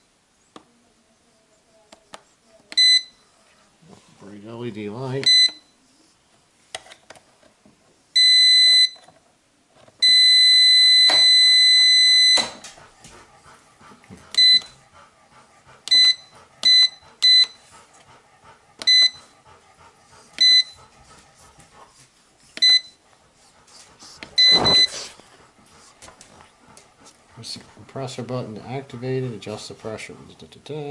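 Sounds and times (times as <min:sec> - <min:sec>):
electronic beeps: 0:24.4 - 0:24.9.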